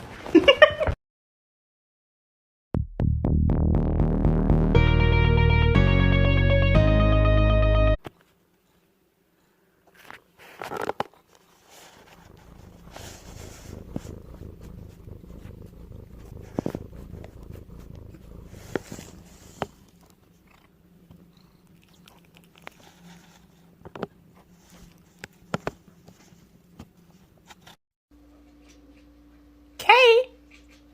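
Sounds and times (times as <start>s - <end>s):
cat purring: 11.5s - 26.6s.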